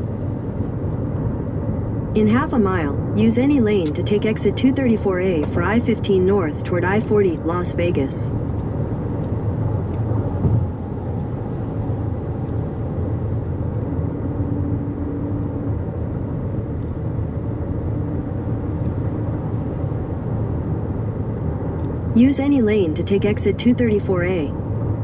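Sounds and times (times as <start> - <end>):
car road and tyre noise: 0.0 - 25.0
faint steady hum: 16.5 - 25.0.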